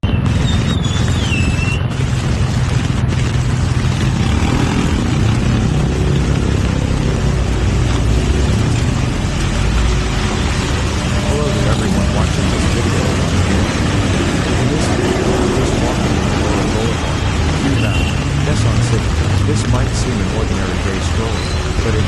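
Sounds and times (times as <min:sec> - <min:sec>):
high falling whine: 0:00.0 - 0:18.7
road traffic rumble: 0:00.0 - 0:22.0.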